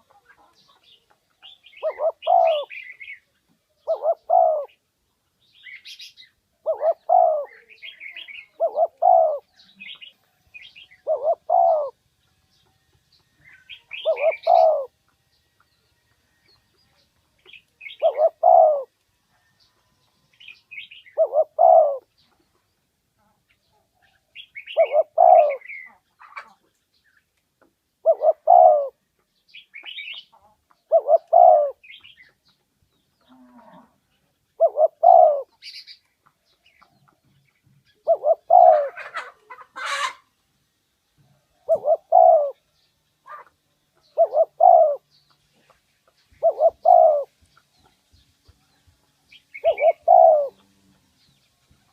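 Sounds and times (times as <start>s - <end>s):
small birds chirping: 0.0s - 51.9s
dove cooing: 1.4s - 3.2s, 3.8s - 4.8s, 5.9s - 12.0s, 13.5s - 15.0s, 17.8s - 18.9s, 20.7s - 22.1s, 24.6s - 26.6s, 28.0s - 29.0s, 30.8s - 32.1s, 34.6s - 35.8s, 38.0s - 40.2s, 41.5s - 42.7s, 43.3s - 45.1s, 46.3s - 47.3s, 49.5s - 50.9s
rustle: 16.0s - 51.9s.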